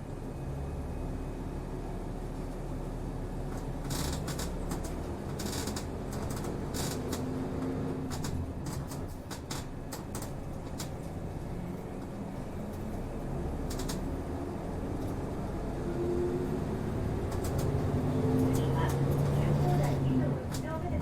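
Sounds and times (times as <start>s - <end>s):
bus engine drone: 0.0s - 21.0s
road noise: 0.0s - 21.0s
clicks and rattles in cabin: 3.6s - 11.3s, 13.6s - 14.2s, 17.2s - 17.8s, 18.5s - 21.0s.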